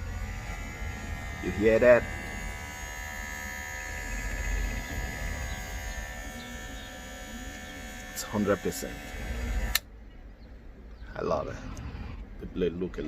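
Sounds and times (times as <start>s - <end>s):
hair clipper buzzing: 0.0s - 9.8s.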